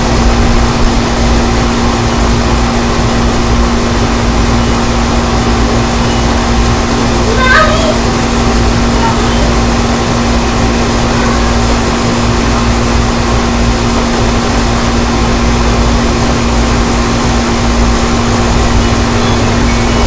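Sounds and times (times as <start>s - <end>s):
even rushing noise: 0.0s - 20.0s
machine hum: 0.0s - 20.0s.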